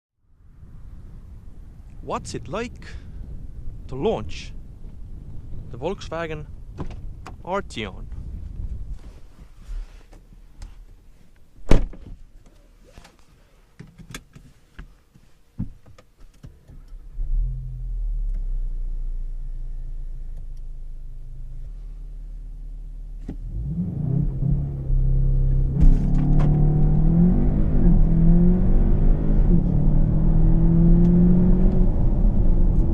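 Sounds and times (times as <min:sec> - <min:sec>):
car engine starting and idling: 0:16.4 - 0:32.9
engine revving: 0:23.4 - 0:32.9.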